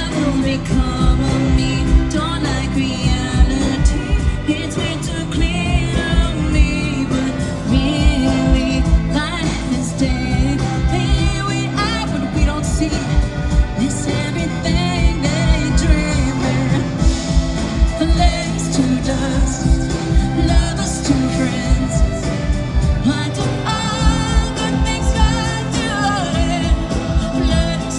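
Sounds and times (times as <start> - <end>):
live pop band: 0.0 - 27.9
woman singing: 0.0 - 27.9
kick drum: 17.0 - 18.4, 19.4 - 20.7.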